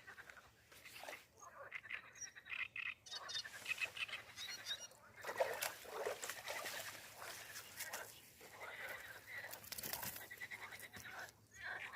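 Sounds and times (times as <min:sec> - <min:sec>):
small birds chirping: 0:00.0 - 0:11.9
light rustling and ticks: 0:05.4 - 0:11.4.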